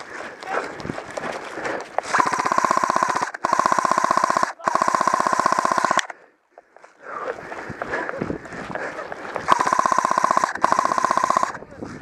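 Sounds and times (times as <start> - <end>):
airsoft rifle rapid shots: 2.1 - 6.2, 9.4 - 11.6.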